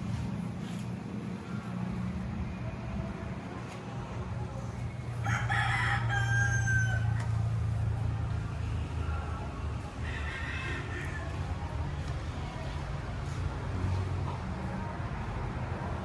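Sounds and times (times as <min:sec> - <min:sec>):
rooster crowing: 0:05.2 - 0:07.5, 0:10.0 - 0:11.5.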